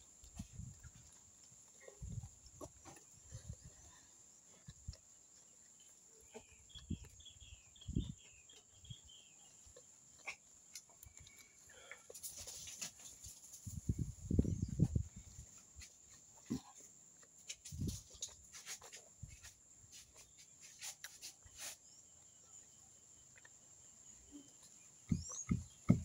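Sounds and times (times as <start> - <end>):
chewing and mouth sounds: 0.1 - 12.2
bird chirping: 5.2 - 11.9, 19.4 - 26.0
soft low thumps: 25.1 - 26.0.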